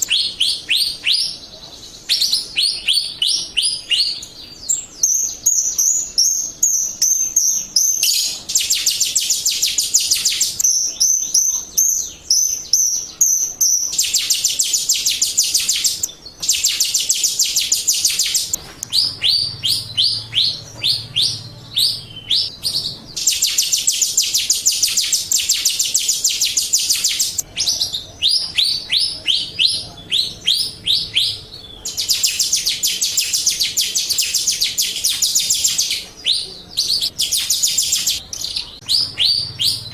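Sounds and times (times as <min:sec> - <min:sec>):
starling chattering: 0:00.0 - 0:39.9.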